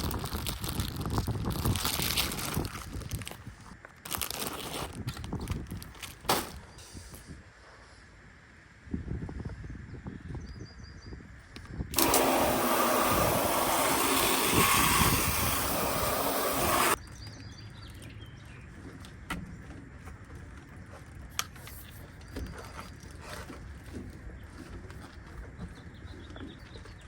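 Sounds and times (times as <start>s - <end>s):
hose nozzle spraying water: 11.9s - 17.0s.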